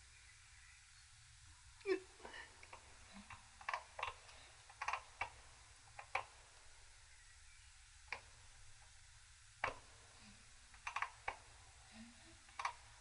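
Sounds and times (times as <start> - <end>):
metal parts clicking and tapping: 10.7 - 11.4.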